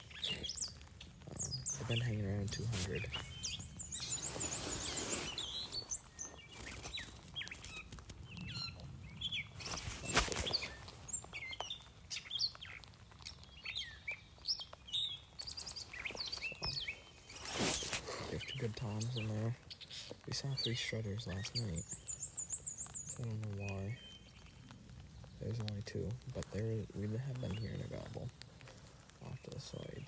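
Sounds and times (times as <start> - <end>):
songbirds chirping and singing: 0.0 - 30.0.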